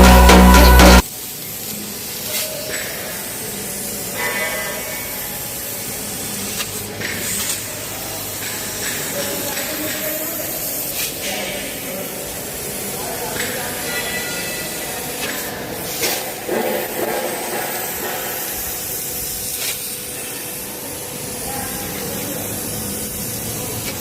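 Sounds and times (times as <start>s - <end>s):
loud music: 0.0s - 1.0s
laser cutter gas jet hissing: 1.0s - 24.0s.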